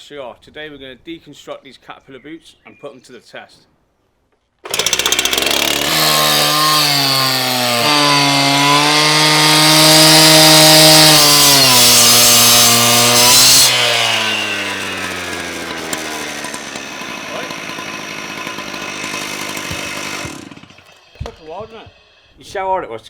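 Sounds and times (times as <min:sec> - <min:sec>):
power tool cutting steel: 0:04.7 - 0:22.4.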